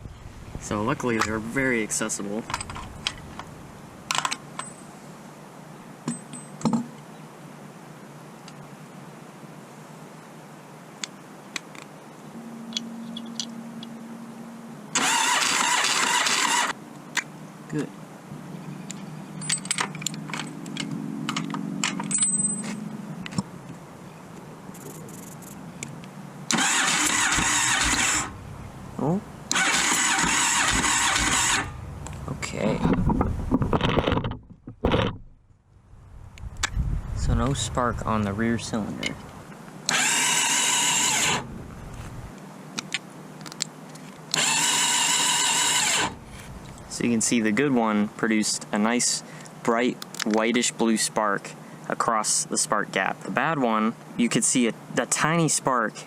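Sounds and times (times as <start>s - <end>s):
starter motor whirring: 14.9s - 16.8s, 26.5s - 28.4s, 29.5s - 32.0s, 39.9s - 41.5s, 44.3s - 46.2s
sharp clicks: 24.8s - 28.3s
engine rushing burst: 26.5s - 32.6s.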